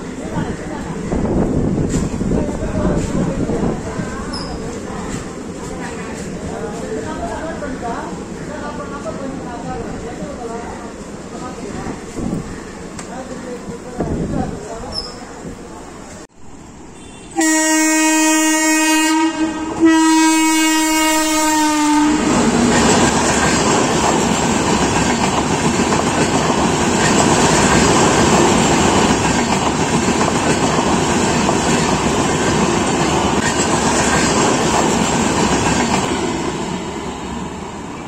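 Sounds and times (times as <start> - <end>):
train wheels rushing on rails: 0.0 - 16.3, 17.0 - 38.0
train horn blasts: 16.9 - 22.3.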